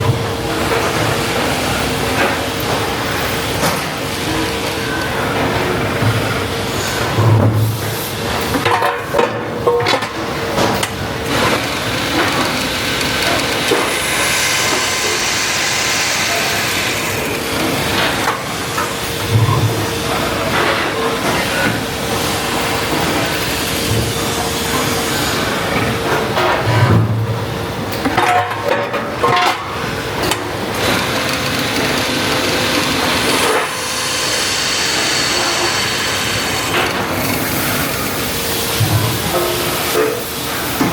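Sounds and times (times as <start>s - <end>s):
punching machine running with hiss: 0.0s - 40.9s
machine rasping noise: 10.2s - 19.2s, 29.7s - 40.0s.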